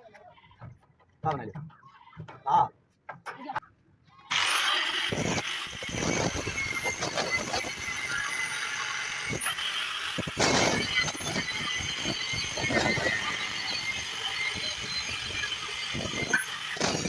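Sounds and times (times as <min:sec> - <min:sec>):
angle grinder whine: 0:04.3 - 0:17.0.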